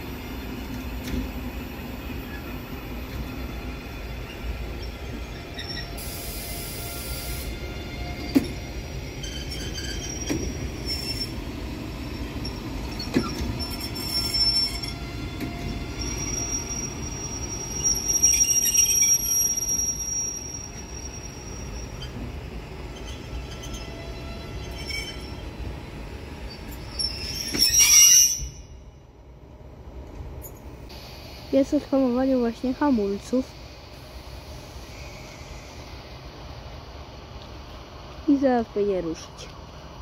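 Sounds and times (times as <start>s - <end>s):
wheel and brake squeal: 2.2s - 2.6s, 3.3s - 11.4s, 12.1s - 25.5s, 26.4s - 28.8s
train wheels clicking over rail joints: 8.1s - 16.2s.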